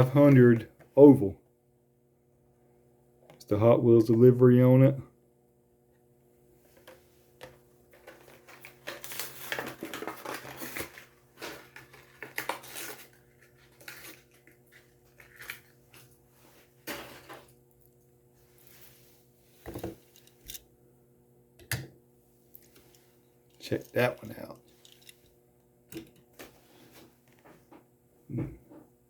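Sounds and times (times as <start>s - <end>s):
plastic blister packaging crinkling: 7.9s - 16.2s.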